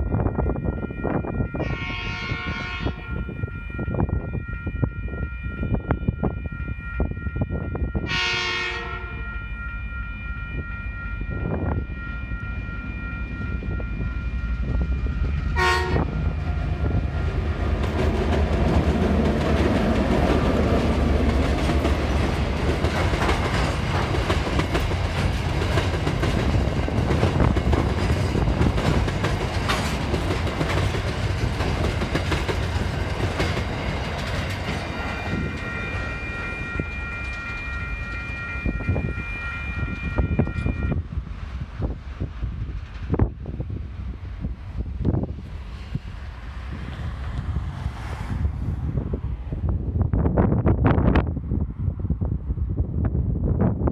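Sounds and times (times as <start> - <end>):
locomotive horn: 0.2 - 17.4, 34.8 - 41.0
locomotive engine passing: 8.4 - 49.7.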